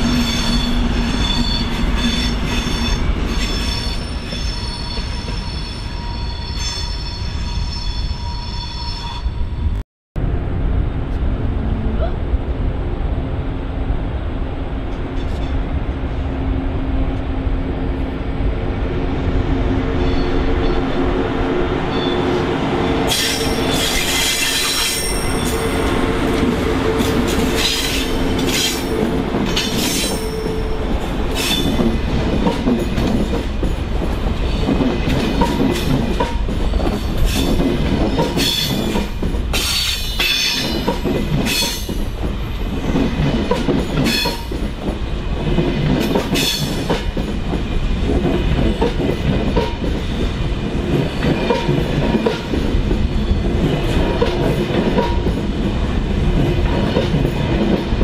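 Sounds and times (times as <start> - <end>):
high wheel squeal: 0.0 - 9.6, 23.1 - 31.8
steady train hum: 0.0 - 58.0.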